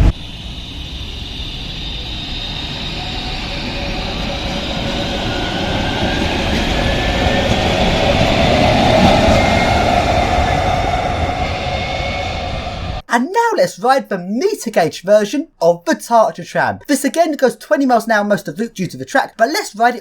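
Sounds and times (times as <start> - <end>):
tram motors whining: 0.0 - 13.0
wheels running on rail: 3.0 - 12.8.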